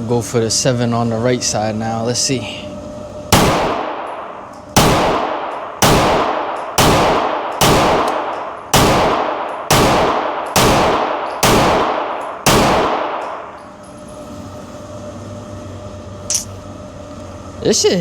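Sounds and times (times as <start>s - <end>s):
pistol shots with echo: 3.3s - 13.5s.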